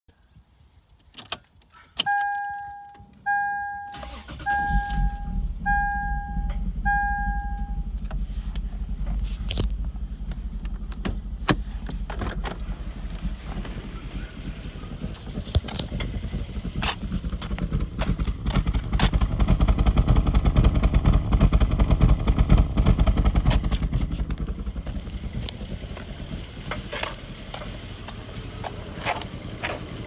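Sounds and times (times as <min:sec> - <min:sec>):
car warning chime beeping: 0:02.0 - 0:08.0
car engine rough idle: 0:04.0 - 0:30.0.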